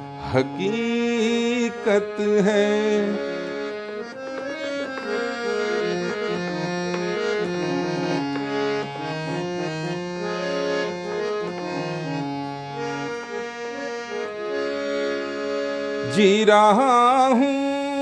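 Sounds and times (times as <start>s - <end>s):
reed-organ melody: 0.0s - 18.0s.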